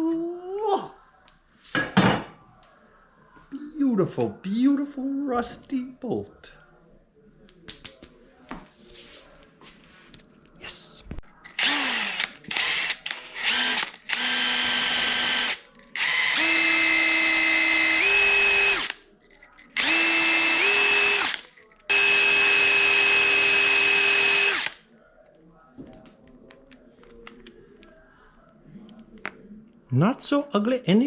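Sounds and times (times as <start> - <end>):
electric drill running: 11.6 - 19.0, 19.8 - 24.8.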